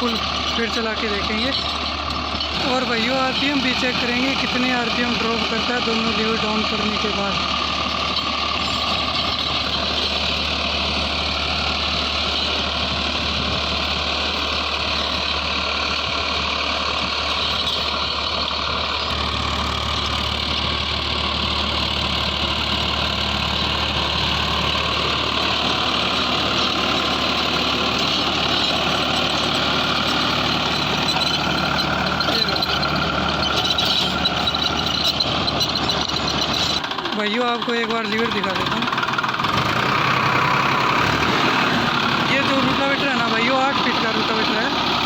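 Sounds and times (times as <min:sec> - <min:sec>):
tractor engine under heavy load: 0:00.0 - 0:45.0.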